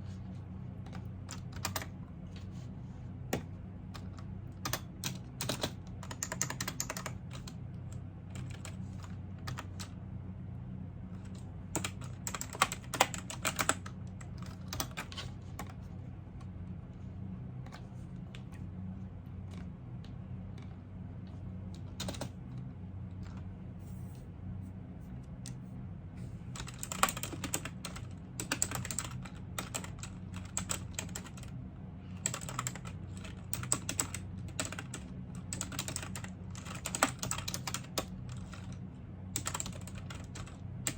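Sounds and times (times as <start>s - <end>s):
steady low hum: 0.0s - 40.9s
typing on computer keyboard: 0.9s - 1.9s, 3.4s - 7.6s, 8.3s - 9.9s, 11.2s - 15.8s, 21.8s - 22.4s, 26.6s - 31.5s, 32.2s - 38.8s, 39.4s - 40.9s.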